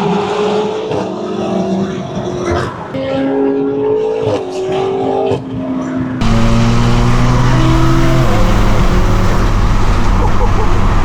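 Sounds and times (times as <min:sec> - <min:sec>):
loud car engine revving: 0:06.2 - 0:11.0.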